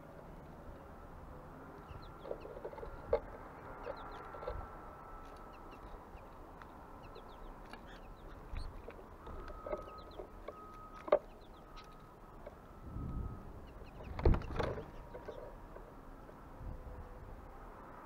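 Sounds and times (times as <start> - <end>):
birds chirping and clucking: 0.7 - 17.1.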